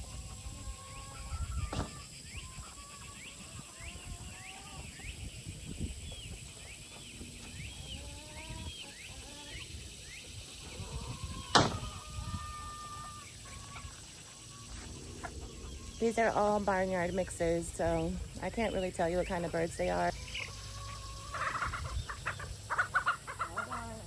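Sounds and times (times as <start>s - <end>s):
young chickens peeping: 0.0s - 24.0s
sharp knock: 1.7s - 2.0s, 11.5s - 11.9s.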